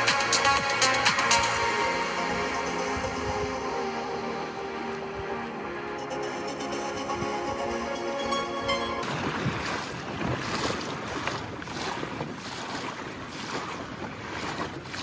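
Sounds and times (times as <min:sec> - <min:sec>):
water sloshing and splashing: 0:00.0 - 0:08.0, 0:09.0 - 0:15.0
background music: 0:00.0 - 0:09.0
wind buffeting microphone: 0:01.5 - 0:06.0, 0:08.6 - 0:15.0.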